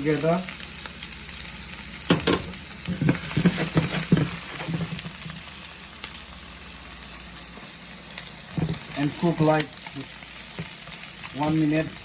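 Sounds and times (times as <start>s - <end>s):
vegetables sizzling in oil: 0.0s - 12.0s
spatula scraping pan: 2.4s - 5.2s.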